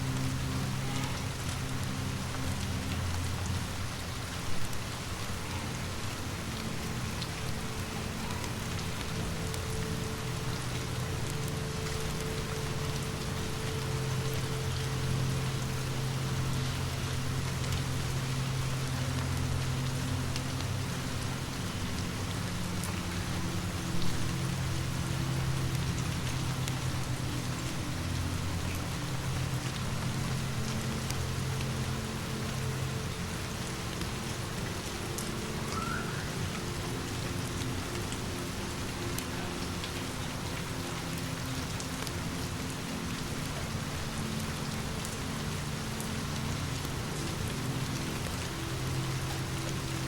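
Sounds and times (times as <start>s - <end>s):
faint crackles and ticks: 0.0s - 50.0s
steady rain falling: 0.0s - 50.0s.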